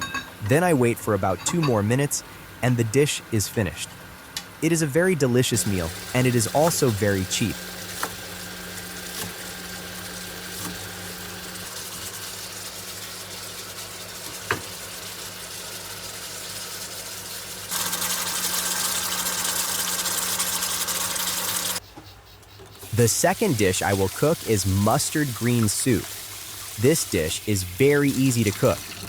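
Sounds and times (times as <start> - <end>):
steady electric hum: 0.0 - 21.8
loud steady hiss: 22.9 - 28.8.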